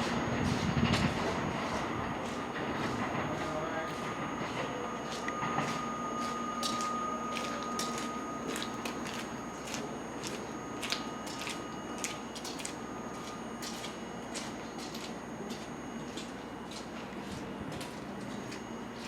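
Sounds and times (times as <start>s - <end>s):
high electrical whine: 0.0s - 19.0s
low train hum: 0.0s - 19.0s.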